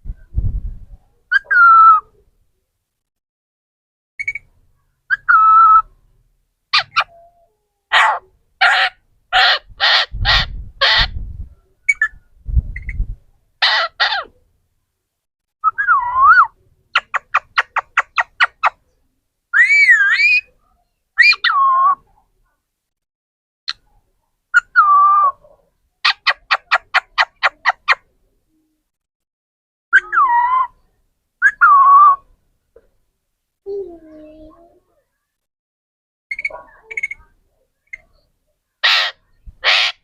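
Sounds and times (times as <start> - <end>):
parrot squawking: 6.7 - 7.2, 7.9 - 11.2, 13.6 - 14.3, 26.0 - 28.0, 38.8 - 40.0.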